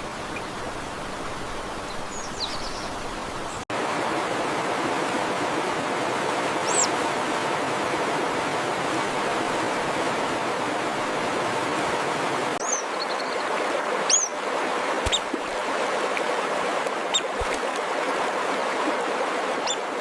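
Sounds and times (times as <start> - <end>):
flowing water rushing: 0.0 - 20.0
high bird chirps: 14.1 - 14.3.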